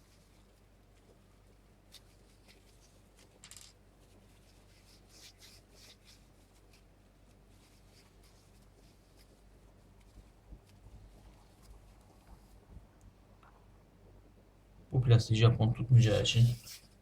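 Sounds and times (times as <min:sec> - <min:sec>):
rubbing plastic parts by hand: 0:00.0 - 0:12.7.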